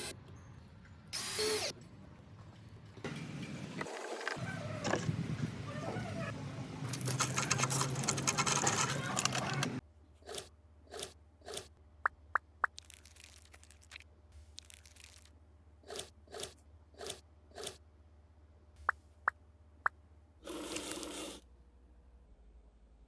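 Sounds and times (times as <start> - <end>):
loud crunching and scraping: 6.8 - 11.7, 12.7 - 15.3.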